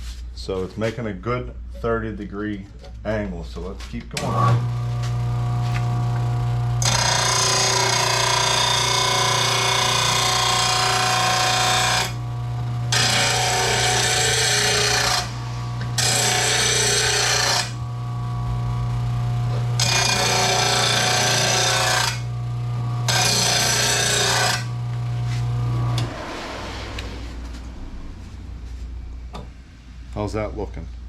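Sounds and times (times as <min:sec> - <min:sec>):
blade grinding on grinding wheel: 0:04.2 - 0:26.4
motor humming: 0:04.2 - 0:27.8.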